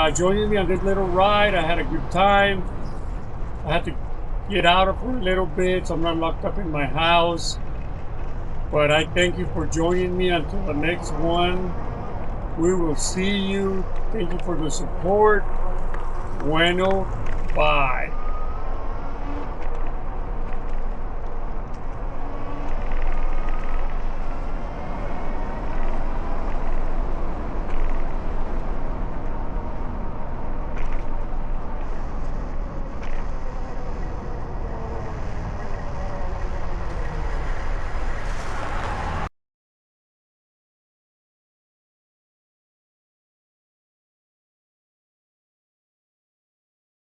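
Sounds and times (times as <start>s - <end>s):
cars passing on city road: 0.0s - 39.3s.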